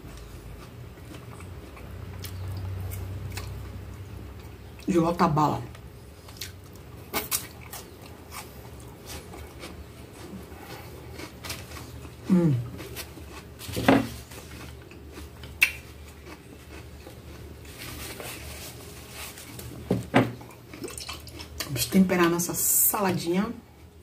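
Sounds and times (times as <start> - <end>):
person chewing: 0.1 - 4.9, 6.0 - 19.8, 20.4 - 21.8
short humming voice: 12.3 - 12.8.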